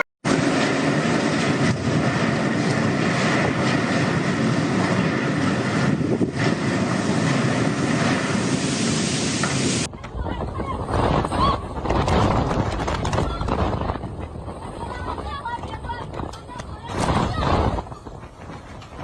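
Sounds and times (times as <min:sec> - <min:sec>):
strong wind: 0:00.0 - 0:19.0
heavy rain: 0:00.3 - 0:10.3.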